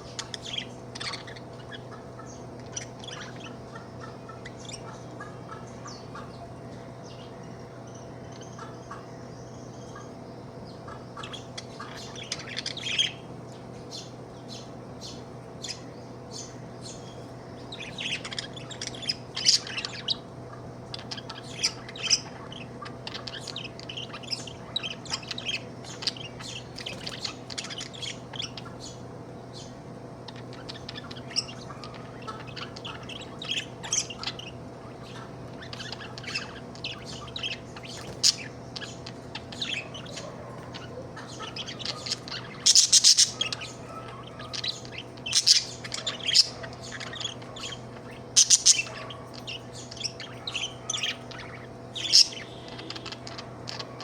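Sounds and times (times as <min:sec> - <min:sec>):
budgie chirping and warbling: 0:00.0 - 0:06.4, 0:10.8 - 0:13.3, 0:13.9 - 0:54.0
steady low hum: 0:00.0 - 0:54.0
budgie squawks: 0:30.2 - 0:54.0.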